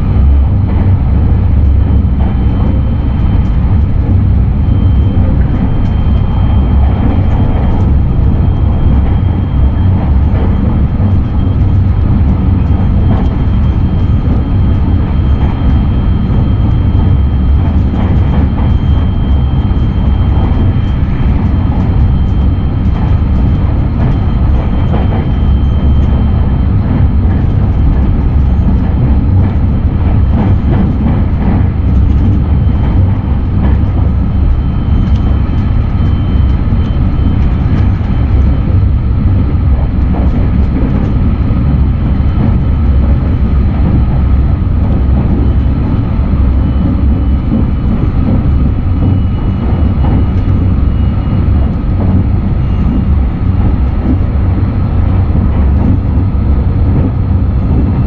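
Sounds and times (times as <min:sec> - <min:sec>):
train running rumble from inside: 0:00.0 - 0:58.0
faint high whine: 0:01.5 - 0:27.2.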